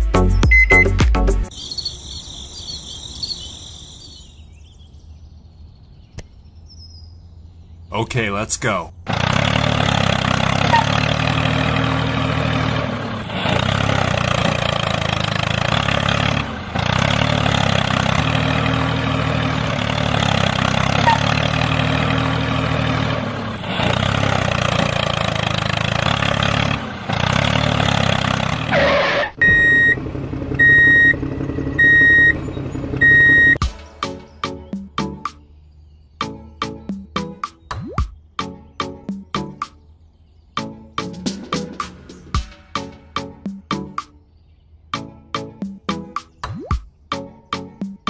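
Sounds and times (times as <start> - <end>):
diesel truck engine running: 7.9 - 35.2
loud high electronic beeps: 29.1 - 30.0, 33.0 - 33.6.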